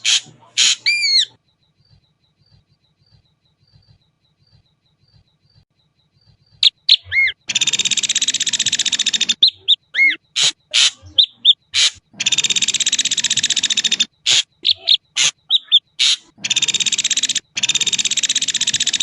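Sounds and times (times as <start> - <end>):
bird harsh rattle: 0.0 - 1.2, 10.4 - 11.1, 11.8 - 19.0
bird whistled notes: 6.5 - 19.0.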